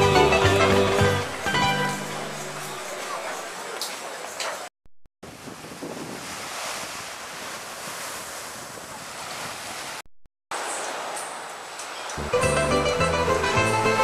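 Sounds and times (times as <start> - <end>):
sea waves washing ashore: 0.0 - 14.0
wind buffeting microphone: 5.2 - 10.0.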